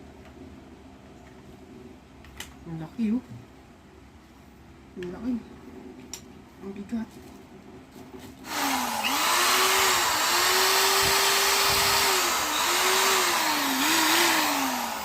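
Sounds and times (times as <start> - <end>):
hammer drill motor whine: 8.5 - 15.0.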